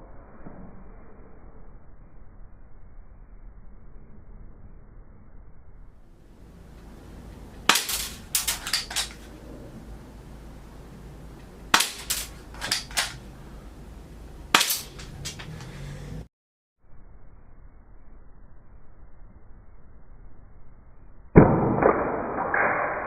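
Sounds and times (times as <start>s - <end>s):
toy gun firing: 7.7s - 9.2s, 11.7s - 13.2s, 14.6s - 15.6s.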